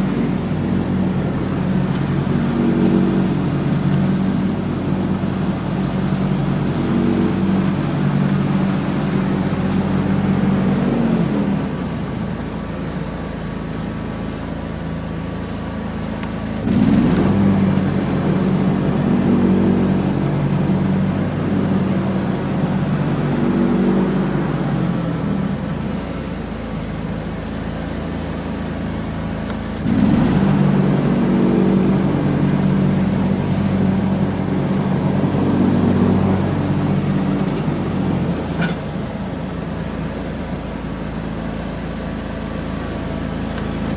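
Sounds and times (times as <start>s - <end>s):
lawn tractor engine mowing: 0.0s - 43.9s.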